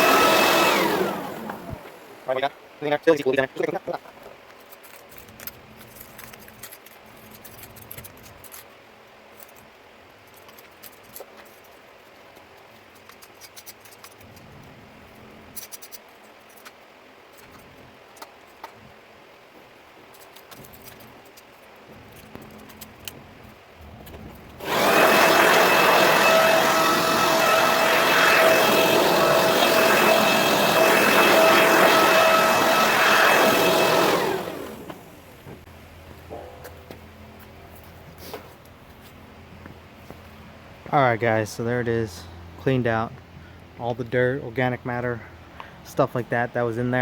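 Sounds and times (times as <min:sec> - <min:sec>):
vacuum motor whining: 0:00.0 - 0:02.4, 0:24.6 - 0:35.6
hand tools clicking and scraping: 0:04.0 - 0:18.9, 0:20.0 - 0:35.7.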